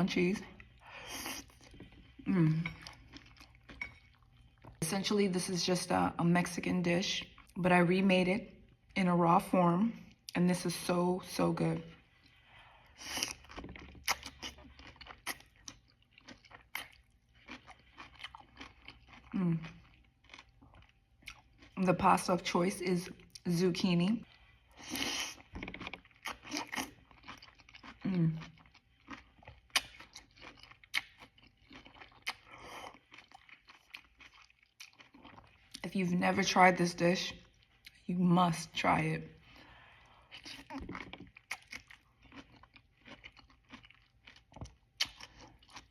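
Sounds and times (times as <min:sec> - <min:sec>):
crunchy chewing: 0:00.6 - 0:04.8, 0:13.0 - 0:21.8, 0:24.3 - 0:35.8, 0:40.4 - 0:45.9.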